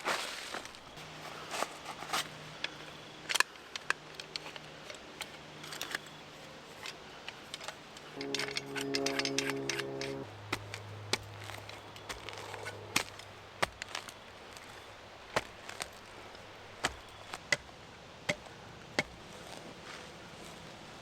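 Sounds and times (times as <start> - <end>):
soft background music: 8.2 - 12.4.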